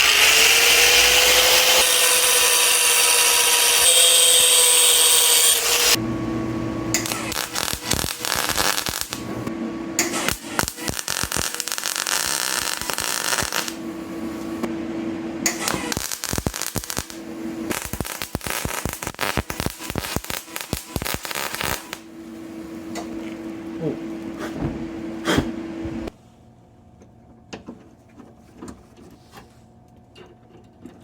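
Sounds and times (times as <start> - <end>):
steady hum: 6.0 - 26.2
welding crackling: 6.9 - 14.6, 15.5 - 22.1.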